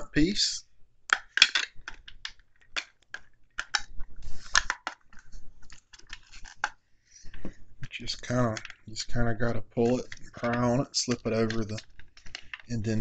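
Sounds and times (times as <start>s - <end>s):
plastic parts clicking and scraping: 1.1s - 13.0s.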